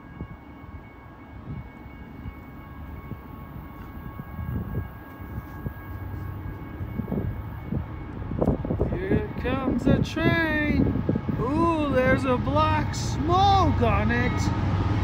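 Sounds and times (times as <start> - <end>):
distant train rumble: 0.0 - 15.0.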